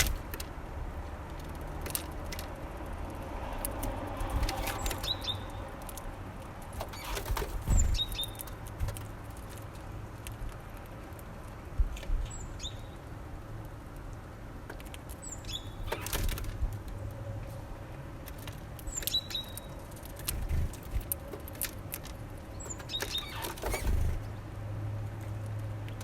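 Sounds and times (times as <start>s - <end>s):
wing flutter and scuffling: 0.0s - 0.6s, 3.6s - 12.2s, 15.8s - 17.6s, 18.2s - 24.5s
small bird calls: 4.3s - 5.8s, 6.8s - 9.1s, 12.2s - 13.0s, 15.2s - 16.3s, 18.8s - 21.6s, 22.3s - 24.4s.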